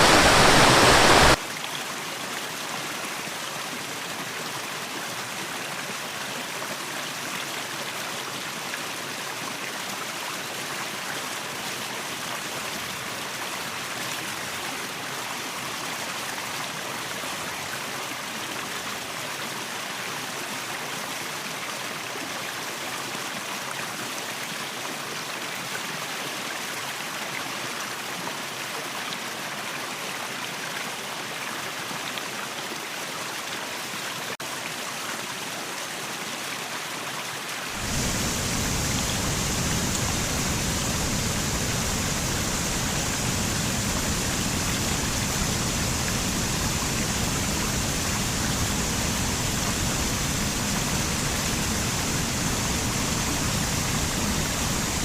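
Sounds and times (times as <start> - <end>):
waterfall rushing and splashing: 0.0 - 55.0.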